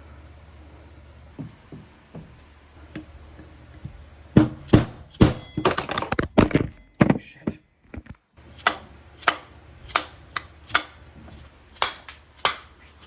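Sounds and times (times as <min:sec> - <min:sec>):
metal tools knocking and clanking: 0:04.4 - 0:07.2.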